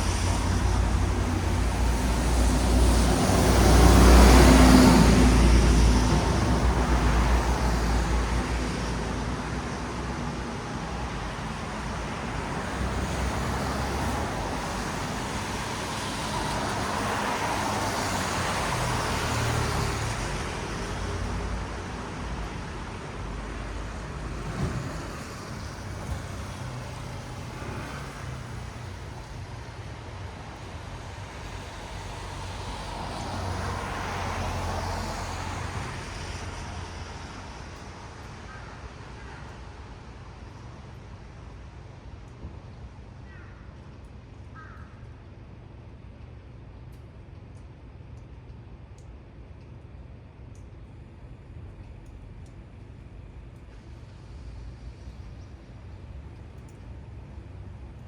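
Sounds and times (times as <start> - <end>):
car tyres hissing on wet road: 0.0 - 37.8.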